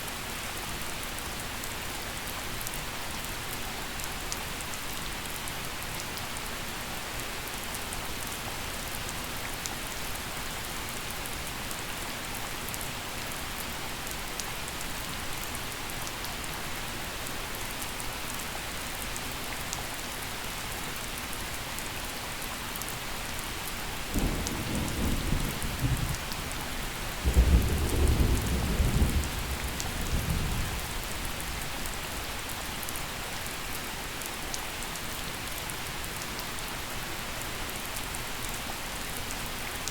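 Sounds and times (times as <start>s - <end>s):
gentle rain falling: 0.0s - 39.9s
thunder rumbling: 27.2s - 31.3s.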